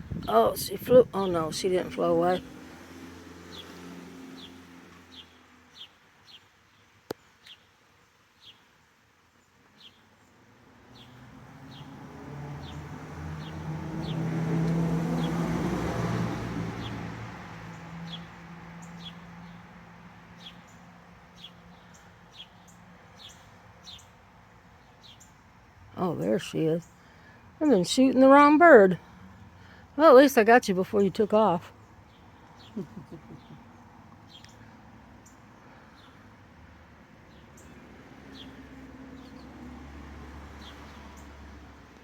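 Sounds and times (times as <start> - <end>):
vehicle passing: 0.0 - 5.9, 10.5 - 24.7, 25.5 - 42.0
small birds chirping: 3.5 - 14.3, 16.7 - 39.8, 40.5 - 41.4.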